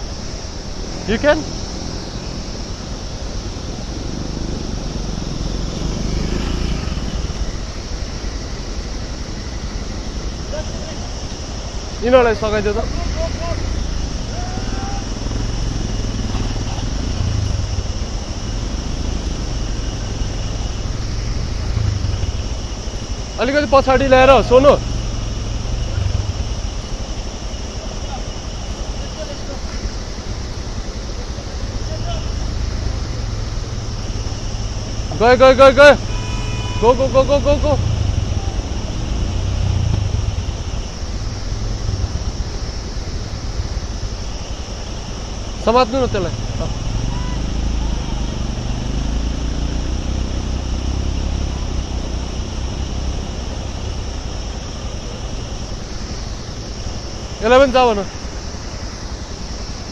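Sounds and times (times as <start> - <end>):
river water rushing: 0.0 - 59.9
vehicle engine running: 0.0 - 59.9
low rumble: 37.8 - 43.6.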